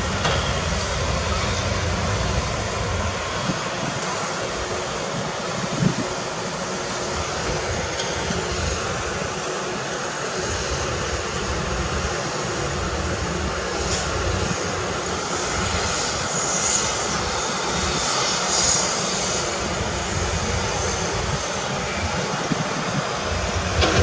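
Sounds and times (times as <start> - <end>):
hiss: 0.0 - 24.0
diesel engine running: 19.1 - 24.0.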